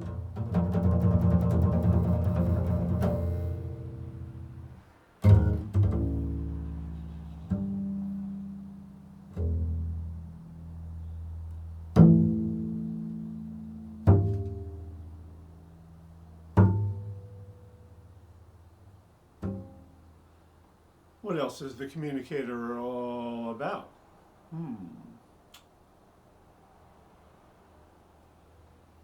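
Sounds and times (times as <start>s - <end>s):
plucked low string instrument: 0.0s - 20.2s.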